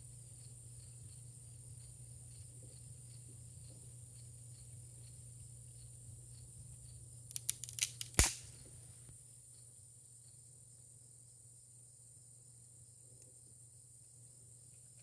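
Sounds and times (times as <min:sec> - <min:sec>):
crickets trilling: 0:00.0 - 0:15.0
sharp clicks: 0:07.3 - 0:08.5
loud crack: 0:07.3 - 0:08.6.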